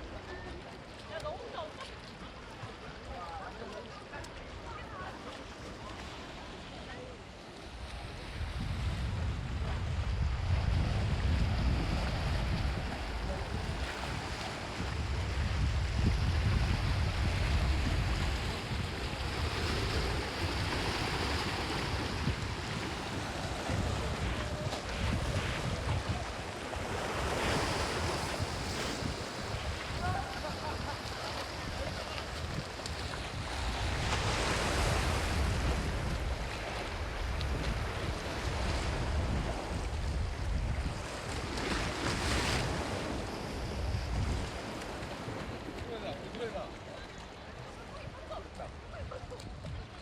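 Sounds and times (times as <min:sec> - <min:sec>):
sea waves: 0:00.0 - 0:50.0
wind buffeting microphone: 0:07.6 - 0:50.0.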